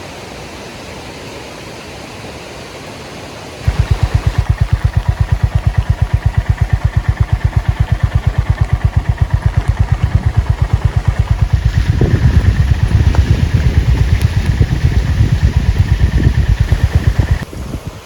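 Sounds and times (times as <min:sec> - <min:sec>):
motorcycle engine idling and revving: 0:03.6 - 0:18.0.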